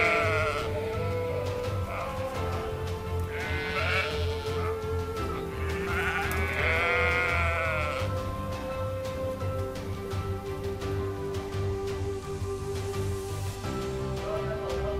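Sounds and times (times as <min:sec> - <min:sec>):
sheep bleating: 0:00.0 - 0:08.2
background music: 0:00.0 - 0:14.9.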